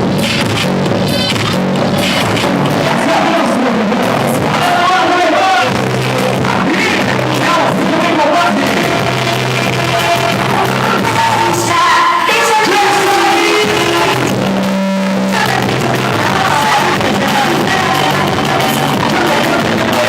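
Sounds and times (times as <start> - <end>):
loud music with singing: 0.0 - 20.0.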